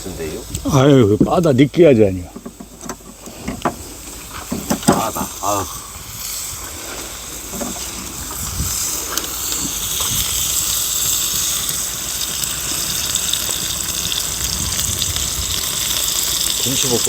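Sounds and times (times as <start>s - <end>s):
food sizzling on a griddle: 0.0s - 17.0s.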